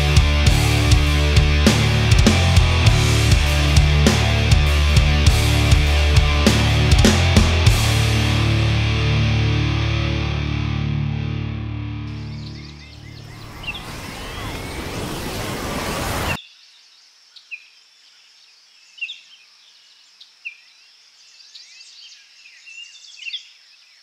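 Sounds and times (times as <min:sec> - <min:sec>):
bird chirps: 0:12.2 - 0:15.4, 0:16.2 - 0:24.0
steady outdoor hiss: 0:12.9 - 0:21.7
loud rushing noise: 0:13.1 - 0:16.4.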